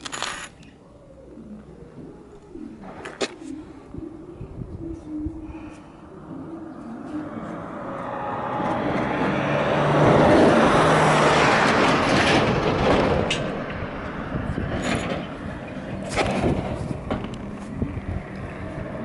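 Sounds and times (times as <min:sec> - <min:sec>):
motor vehicle passing by: 0:05.6 - 0:19.0.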